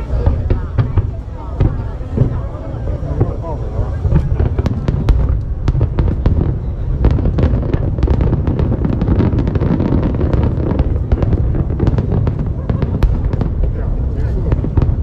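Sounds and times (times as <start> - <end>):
fireworks cracking bangs: 0.0 - 15.0
low rumble of bursting shells: 0.0 - 15.0.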